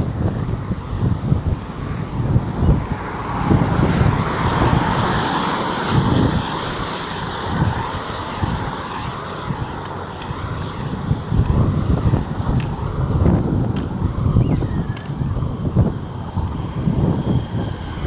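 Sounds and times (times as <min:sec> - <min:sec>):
vehicle road noise passing: 0:00.0 - 0:18.0
wind gusting on microphone: 0:00.0 - 0:18.0.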